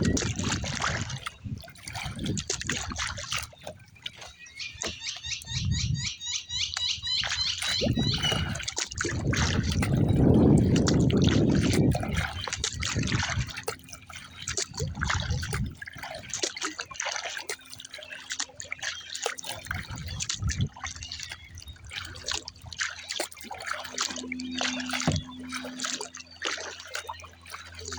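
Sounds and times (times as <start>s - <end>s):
wind rumble on microphone: 0.0s - 16.4s, 19.5s - 22.8s, 23.4s - 27.9s
water splashing around kayak: 0.0s - 27.9s
bird chirping: 4.2s - 8.6s.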